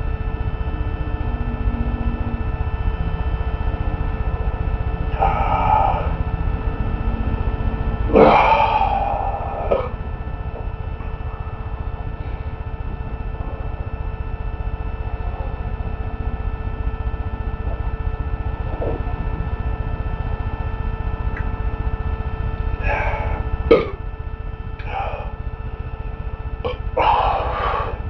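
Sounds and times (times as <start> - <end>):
low rumble and hum: 0.0 - 28.0
man clearing throat and coughing: 23.7 - 24.0.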